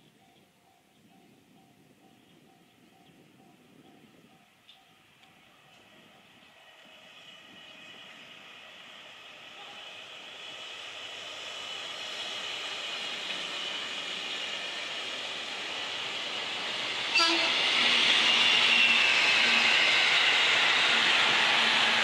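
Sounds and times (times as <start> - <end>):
electric train running noise: 0.2 - 22.0
train horn blast: 17.2 - 17.7.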